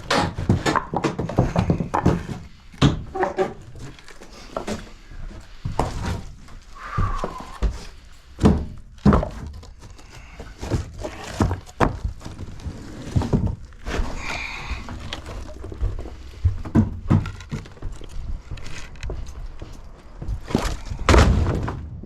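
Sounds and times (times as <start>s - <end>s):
flooring being pried and broken: 0.0s - 19.2s, 20.2s - 22.0s.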